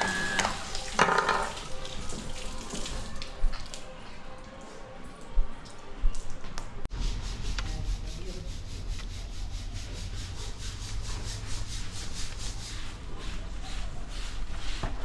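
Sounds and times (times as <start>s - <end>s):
rapid rhythmic scrubbing: 7.3s - 14.8s.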